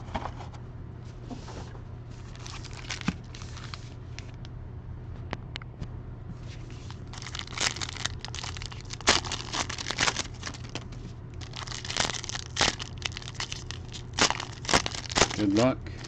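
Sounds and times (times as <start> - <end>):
plastic wrapping tearing: 2.3 - 3.8, 6.8 - 15.6.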